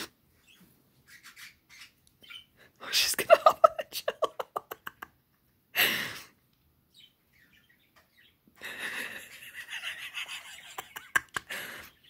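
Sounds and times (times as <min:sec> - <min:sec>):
bird singing and chirping: 0:00.4 - 0:02.6, 0:06.9 - 0:08.4.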